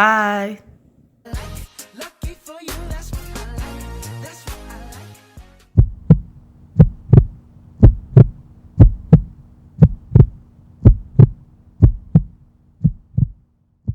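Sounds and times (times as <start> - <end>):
faint steady hum: 5.8 - 13.9
heartbeat thumps: 5.8 - 13.9.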